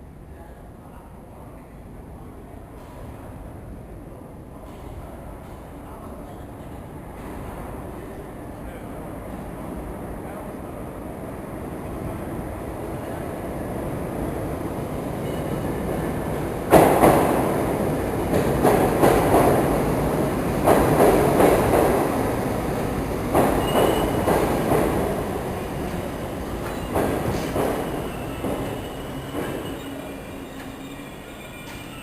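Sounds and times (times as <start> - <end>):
train rumble: 11.8 - 32.0
faint wheel squeal: 26.7 - 32.0.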